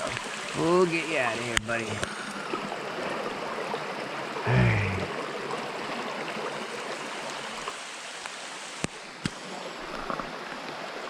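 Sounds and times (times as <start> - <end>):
rain falling: 0.0 - 2.2, 4.4 - 10.6
mountain stream flowing: 0.0 - 11.0.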